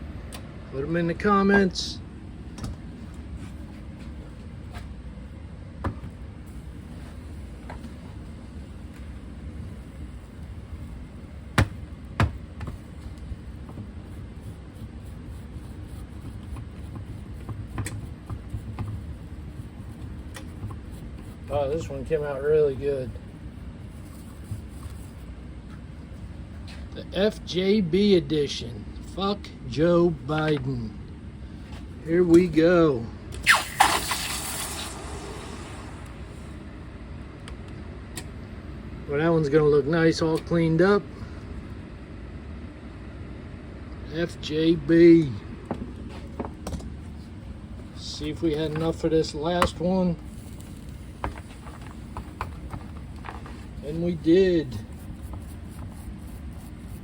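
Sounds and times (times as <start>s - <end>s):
casting knocked out of mold: 33.4s - 35.3s
hot metal sizzling in water: 33.4s - 35.6s.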